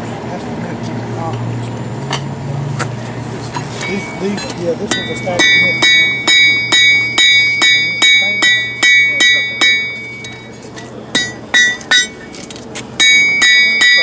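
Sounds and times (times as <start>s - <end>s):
hammer ringing on anvil: 3.8s - 12.4s, 13.0s - 14.0s.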